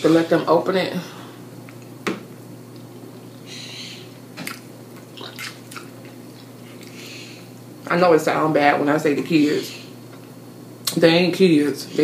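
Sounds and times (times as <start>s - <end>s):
person chewing with wet smacking: 4.4s - 7.0s.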